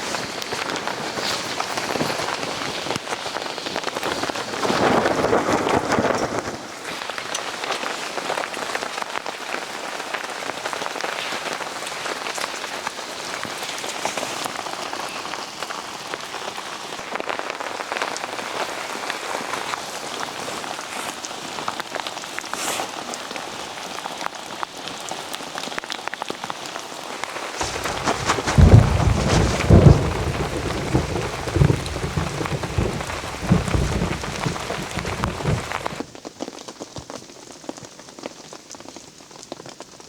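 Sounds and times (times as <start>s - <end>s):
rain on foliage: 0.0s - 40.0s
thunder rumble: 27.6s - 36.1s.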